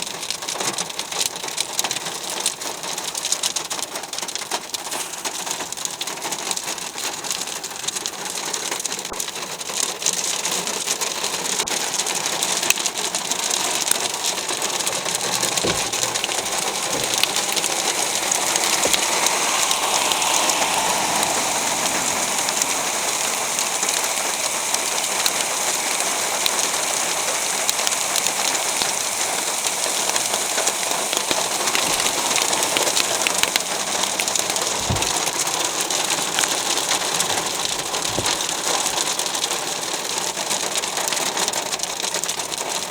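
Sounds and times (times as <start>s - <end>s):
hailstones ticking: 0.0s - 42.9s
heavy rain hiss: 0.0s - 42.9s.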